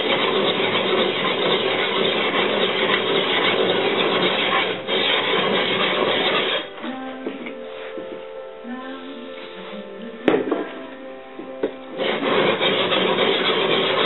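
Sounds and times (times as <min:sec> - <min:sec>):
sharpening stone scraping blade: 0:00.0 - 0:06.7, 0:12.0 - 0:14.0
music with plucked notes: 0:06.7 - 0:12.0.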